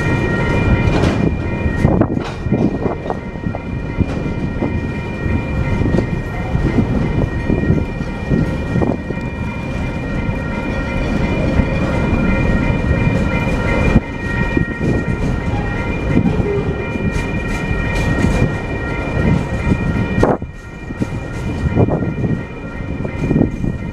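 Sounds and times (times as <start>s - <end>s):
freight train rumbling on rails: 0.0s - 23.9s
knocks of train wagons: 0.4s - 4.8s.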